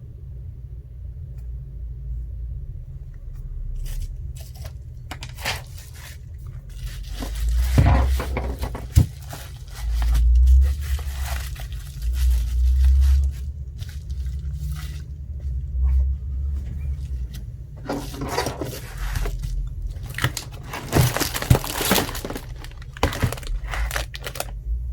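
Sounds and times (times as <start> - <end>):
scraping and crinkling: 3.4 - 24.6
handling thumps: 5.1 - 14.0, 14.8 - 24.5.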